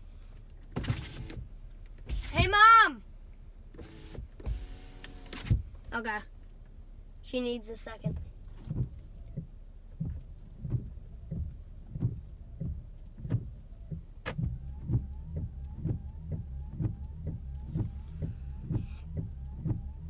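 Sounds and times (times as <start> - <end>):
windshield wipers knocking: 0.8 - 2.9, 3.8 - 6.2, 8.0 - 20.0
wiper blades squeaking: 2.1 - 2.9, 3.8 - 6.2, 7.9 - 20.0.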